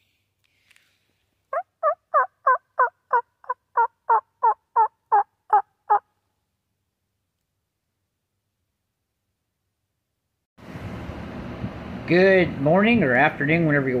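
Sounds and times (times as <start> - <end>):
turkey yelps: 1.5 - 6.1.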